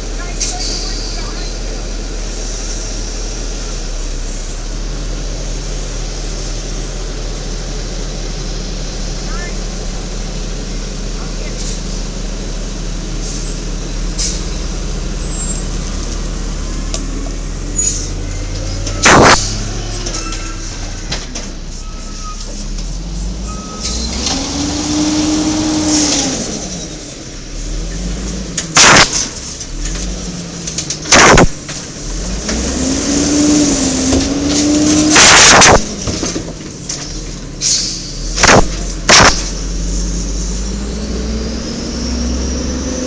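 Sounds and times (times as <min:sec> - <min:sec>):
garbage truck running: 0:00.0 - 0:43.0
loud sudden bursts: 0:19.0 - 0:19.7, 0:28.7 - 0:29.4, 0:31.0 - 0:31.8, 0:34.0 - 0:36.0, 0:38.4 - 0:39.8.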